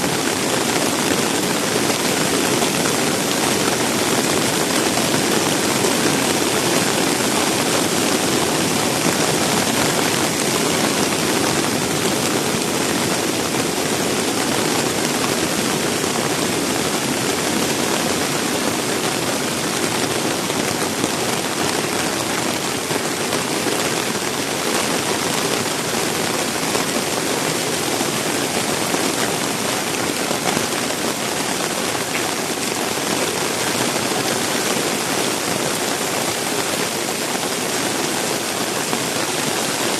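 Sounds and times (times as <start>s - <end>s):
strong wind: 0.0s - 34.1s
heavy rain pouring: 0.0s - 39.9s.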